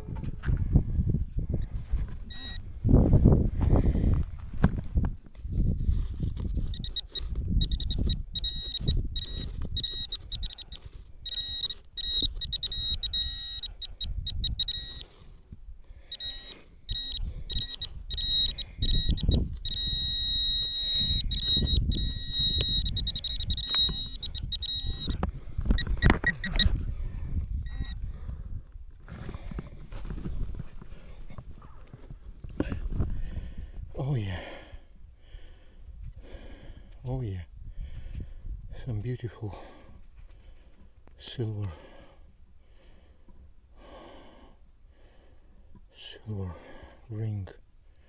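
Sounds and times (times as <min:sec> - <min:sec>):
high electronic beep: 0:02.3 - 0:02.6, 0:06.7 - 0:15.0, 0:16.1 - 0:25.2, 0:25.8 - 0:26.7, 0:27.7 - 0:28.0
scraping and rustling of soil: 0:03.6 - 0:07.6.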